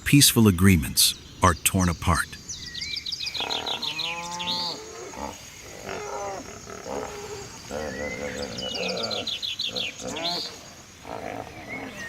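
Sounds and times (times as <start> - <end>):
bird high chirps: 0.4 - 4.8
large animal deep calls: 3.3 - 12.0.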